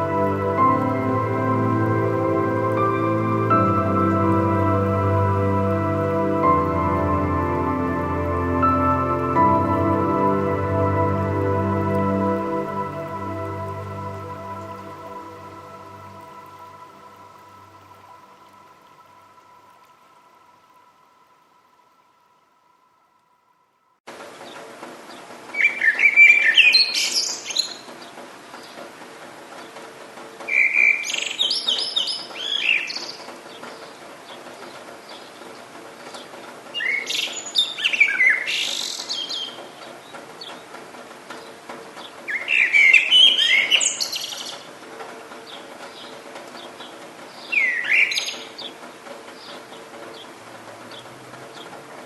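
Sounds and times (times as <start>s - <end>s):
songbird warbling: 25.6s - 28.8s, 30.5s - 40.7s, 41.3s - 51.8s.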